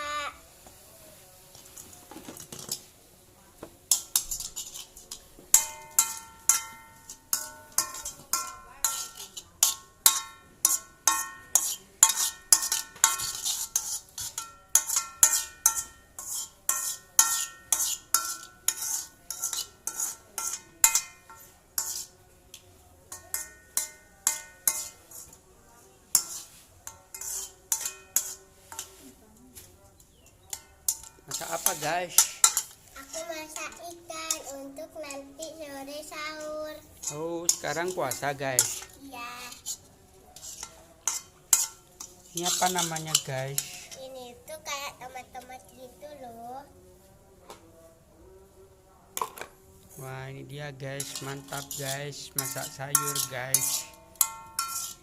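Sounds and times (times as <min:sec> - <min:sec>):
metal utensil clanking in pan: 0:03.9 - 0:25.4, 0:26.1 - 0:29.0, 0:30.1 - 0:44.5, 0:51.0 - 0:55.0.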